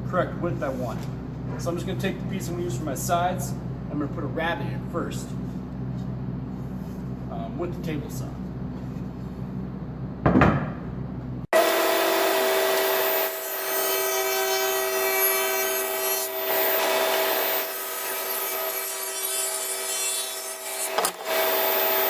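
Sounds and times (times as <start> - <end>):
table saw cutting wood: 11.6 - 22.0.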